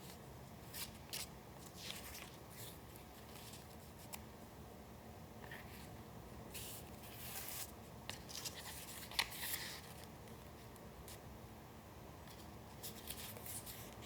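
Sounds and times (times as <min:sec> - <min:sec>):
paper rustling: 0:00.0 - 0:04.2, 0:06.5 - 0:11.2, 0:12.3 - 0:14.0.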